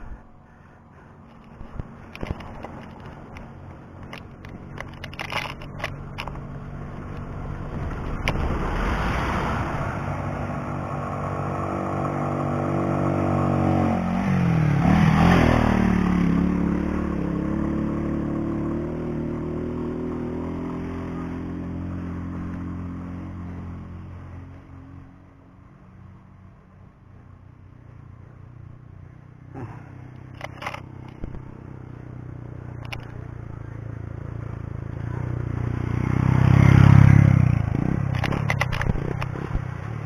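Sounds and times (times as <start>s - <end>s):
vehicle engine running: 0.0s - 15.0s, 26.6s - 40.0s.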